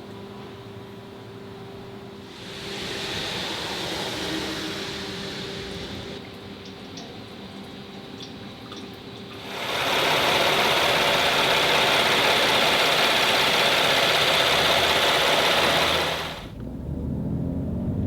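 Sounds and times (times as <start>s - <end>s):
steady mechanical running noise: 0.0s - 18.0s.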